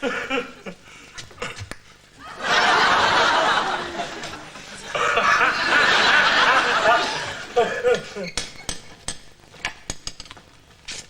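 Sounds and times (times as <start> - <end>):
studio audience laughter: 2.2 - 8.3.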